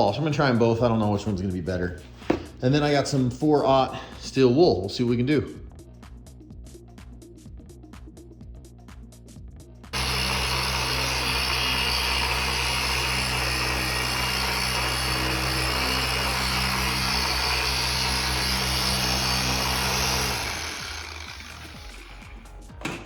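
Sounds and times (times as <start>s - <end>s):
electric power tool running: 10.0s - 23.0s.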